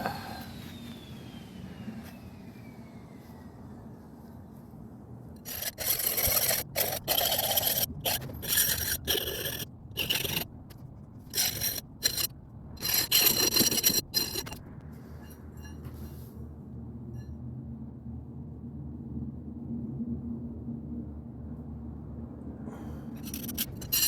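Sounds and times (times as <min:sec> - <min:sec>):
file rasping on steel: 0:05.4 - 0:10.5, 0:11.3 - 0:14.6, 0:23.2 - 0:24.0.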